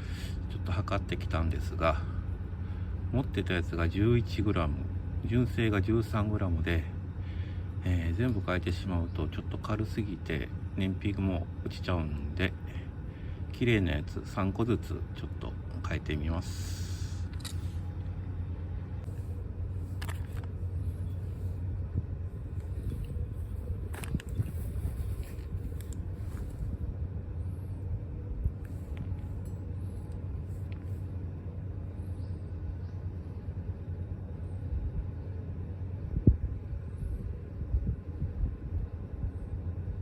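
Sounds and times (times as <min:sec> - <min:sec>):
steady low rumble: 0:00.0 - 0:40.0
light clicks of parts handled: 0:19.9 - 0:21.2.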